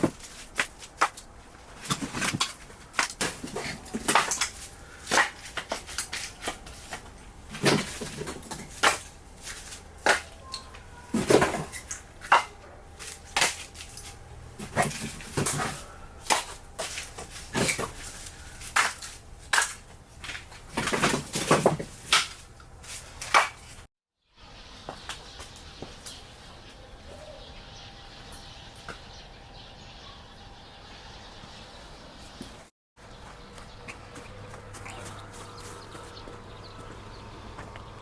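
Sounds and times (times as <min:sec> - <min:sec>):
firewood logs clattering: 0:00.0 - 0:23.9.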